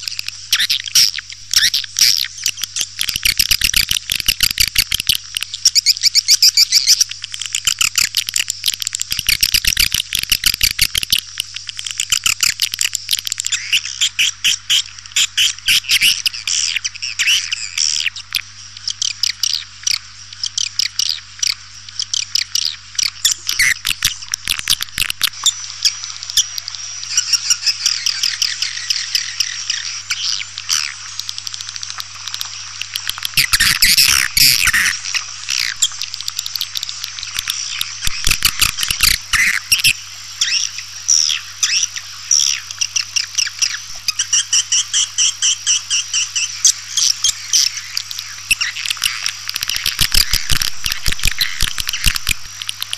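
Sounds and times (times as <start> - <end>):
swiftlets twittering: 32.9 - 52.9.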